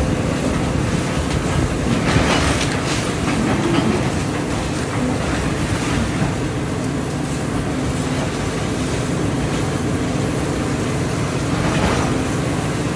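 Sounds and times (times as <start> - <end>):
excavator diesel engine running: 0.0 - 12.9
demolition rattling and knocking: 0.3 - 6.4.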